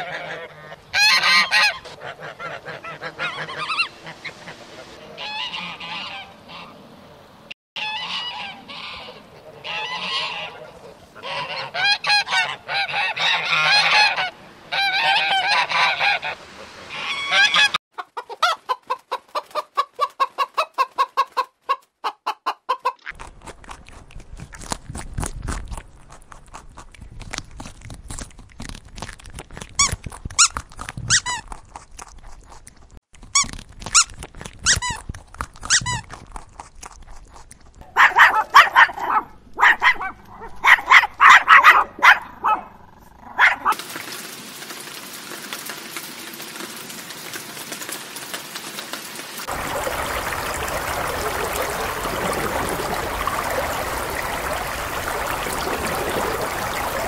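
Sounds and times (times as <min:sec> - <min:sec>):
geese honking: 0:00.0 - 0:06.8, 0:07.8 - 0:17.8
hen clucking: 0:00.0 - 0:06.8, 0:07.8 - 0:23.2, 0:49.5 - 0:57.0.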